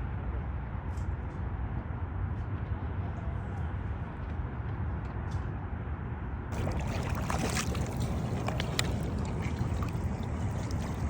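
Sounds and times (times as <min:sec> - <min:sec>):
water rushing and splashing: 0:06.5 - 0:11.0.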